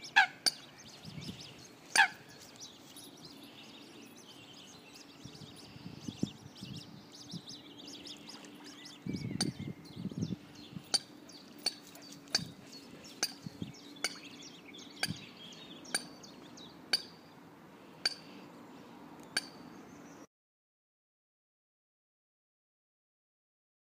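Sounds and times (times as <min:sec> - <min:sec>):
bird clinking call notes: 0:00.0 - 0:06.3, 0:07.8 - 0:10.0, 0:10.7 - 0:17.3, 0:18.0 - 0:18.4, 0:19.2 - 0:19.7.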